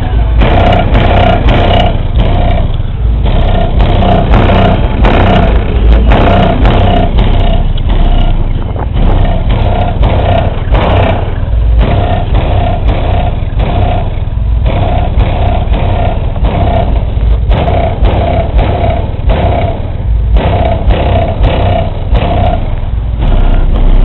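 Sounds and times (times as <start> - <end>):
bass-heavy music from subwoofer: 0.0 - 24.0
short repeating tone: 23.2 - 24.0.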